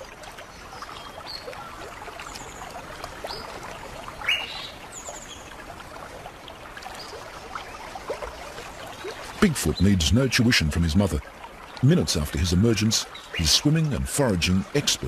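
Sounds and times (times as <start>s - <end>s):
running water hiss: 0.0s - 15.0s.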